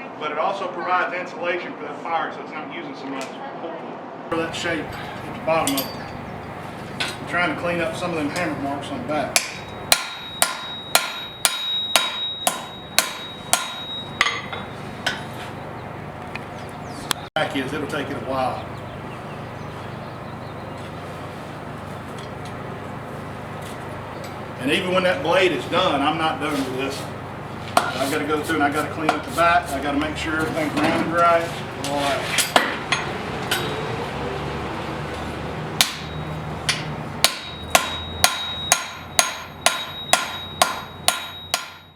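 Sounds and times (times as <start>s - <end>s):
steady low hum: 4.3s - 33.1s
hammer striking blade on anvil: 4.8s - 6.3s, 9.3s - 15.4s, 35.8s - 41.9s.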